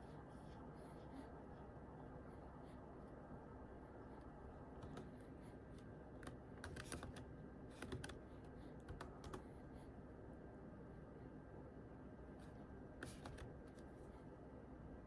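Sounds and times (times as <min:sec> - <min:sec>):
computer keyboard typing: 0:06.2 - 0:07.2, 0:07.8 - 0:08.2, 0:08.8 - 0:09.4.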